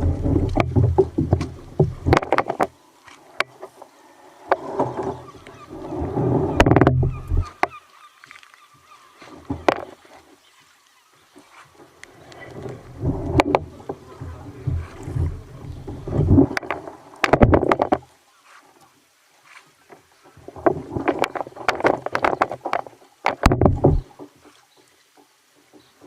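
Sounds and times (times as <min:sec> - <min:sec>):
water splashing against kayak hull: 0:00.0 - 0:26.0
sharp knocks: 0:21.1 - 0:24.1.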